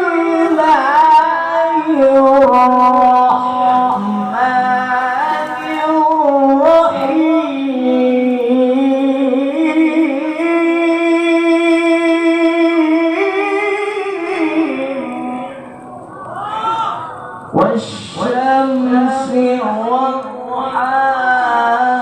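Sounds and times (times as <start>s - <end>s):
man chanting recitation: 0.0s - 16.0s, 17.5s - 22.0s.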